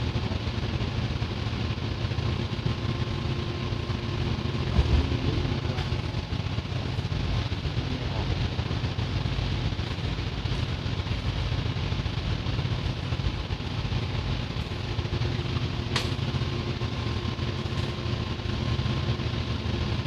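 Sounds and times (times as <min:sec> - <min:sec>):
machinery droning: 0:00.0 - 0:20.0
sharp click: 0:15.9 - 0:16.2.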